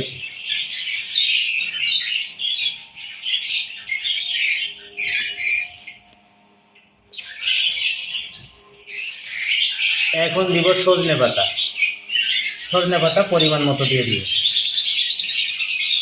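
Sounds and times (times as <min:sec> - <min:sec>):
birds chirping and squawking: 0:00.0 - 0:16.0.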